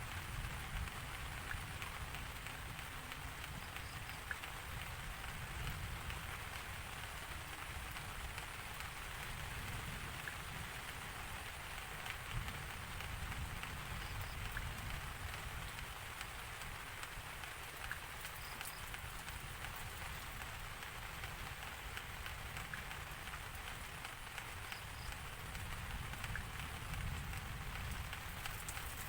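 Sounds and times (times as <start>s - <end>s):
steady rain hiss: 0.0s - 29.0s
droplet ticks: 0.7s - 6.2s, 12.0s - 29.0s.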